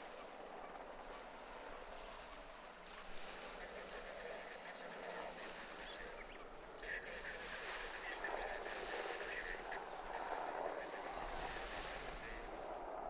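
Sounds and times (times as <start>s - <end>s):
calm sea hissing: 0.0s - 13.0s
light wind: 0.0s - 13.0s.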